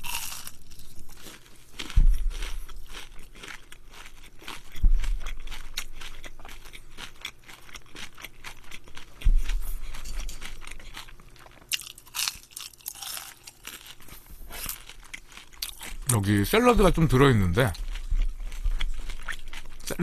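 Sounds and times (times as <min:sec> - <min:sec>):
crunching and chewing fried food: 0:00.0 - 0:20.0
dull low thumps: 0:01.8 - 0:03.0, 0:04.6 - 0:05.8, 0:09.1 - 0:10.0, 0:16.7 - 0:19.8.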